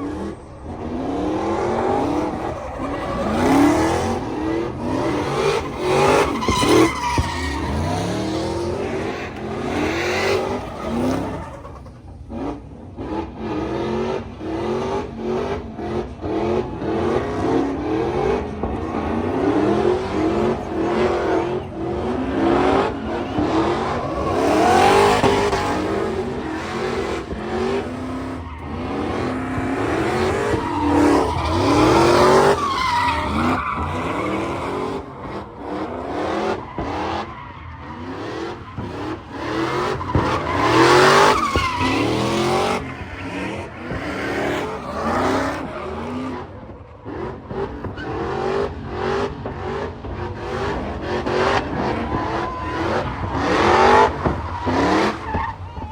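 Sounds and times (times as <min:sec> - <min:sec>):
car engines revving: 0:00.0 - 0:55.9
tyre squeal: 0:01.5 - 0:12.1, 0:19.4 - 0:46.9, 0:50.4 - 0:55.9.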